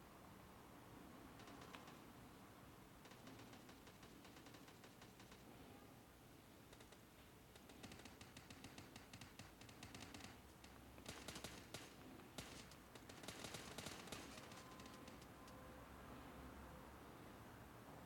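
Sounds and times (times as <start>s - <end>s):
rapid clicking and tapping: 1.4s - 2.0s, 3.0s - 5.5s, 6.7s - 15.3s.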